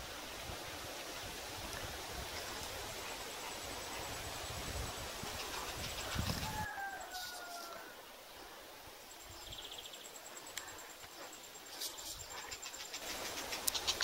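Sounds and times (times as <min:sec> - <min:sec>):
sharp ticks: 0:12.0 - 0:14.0.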